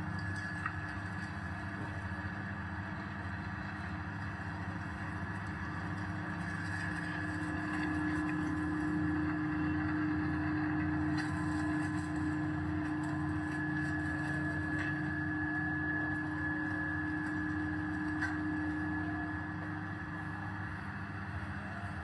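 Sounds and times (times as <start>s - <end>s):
grinding mill motor hum: 0.0s - 22.0s
steady whine: 0.0s - 22.0s.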